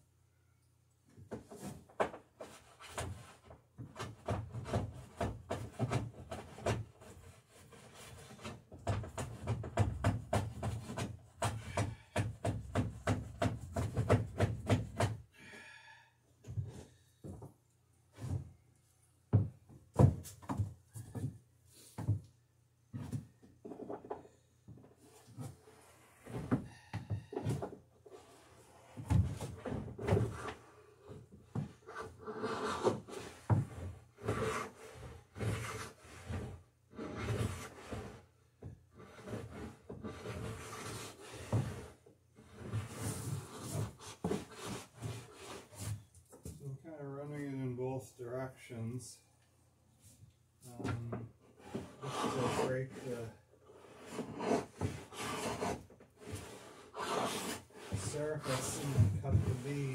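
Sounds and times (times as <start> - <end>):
wood scraper cutting along rail: 31.9 - 33.4, 34.2 - 38.2, 39.0 - 45.7, 51.6 - 59.9.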